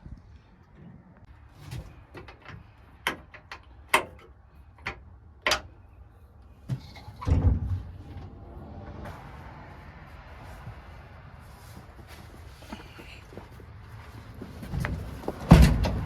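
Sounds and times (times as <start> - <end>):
sharp clicks and knocks: 1.8 - 5.7.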